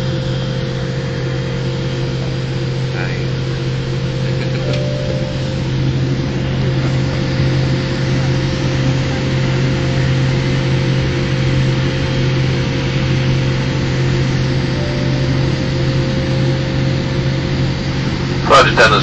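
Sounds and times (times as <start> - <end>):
low hum: 0.0 - 18.9
aircraft cabin drone: 0.0 - 19.0
faint steady high tone: 4.6 - 7.1, 14.6 - 17.6.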